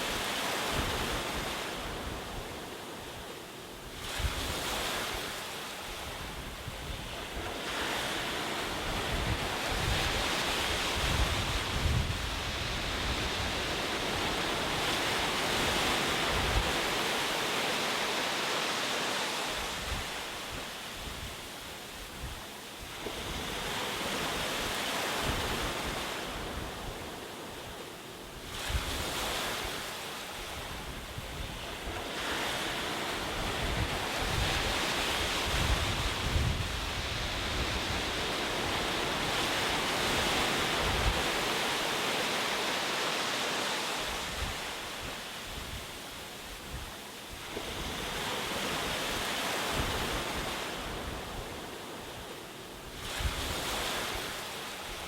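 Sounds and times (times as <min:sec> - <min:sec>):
ocean waves washing onto shore: 0:00.0 - 0:55.0
wind buffeting microphone: 0:06.0 - 0:17.0, 0:30.5 - 0:41.7.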